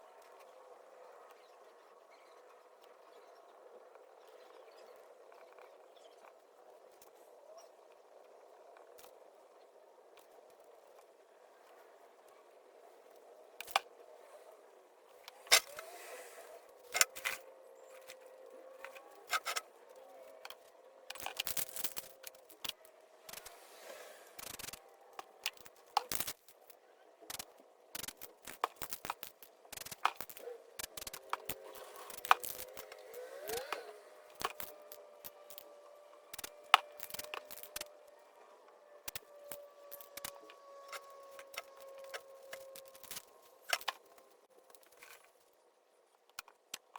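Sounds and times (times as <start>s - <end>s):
tools clicking and scraping: 13.2s - 14.4s, 15.1s - 45.4s.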